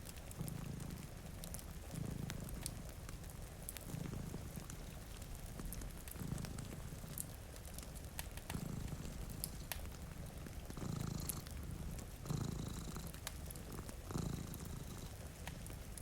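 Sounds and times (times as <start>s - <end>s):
wood fire crackling: 0.0s - 16.0s
cat purring: 0.2s - 16.0s
rain hissing: 3.6s - 16.0s.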